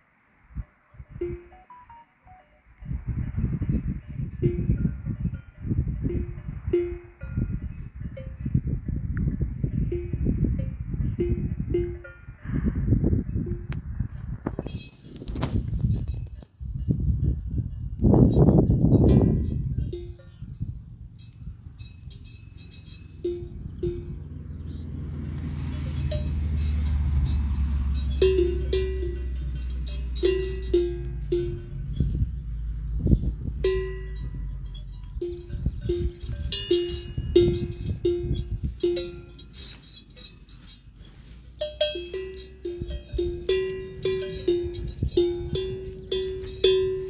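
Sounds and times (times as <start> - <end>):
cowbells clanking: 1.2 - 2.0, 3.5 - 8.4, 9.8 - 12.4, 16.1 - 32.7, 33.6 - 47.0
low rumble: 17.0 - 40.6.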